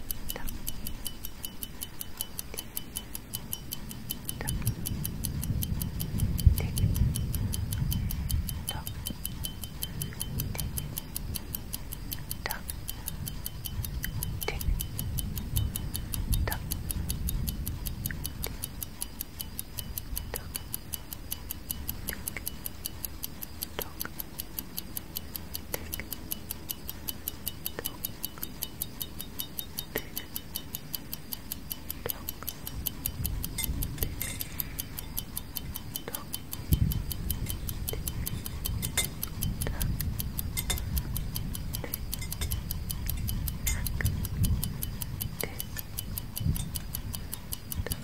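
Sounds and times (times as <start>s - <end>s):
clock ticking: 0.0s - 48.0s
low rumble: 32.6s - 45.4s.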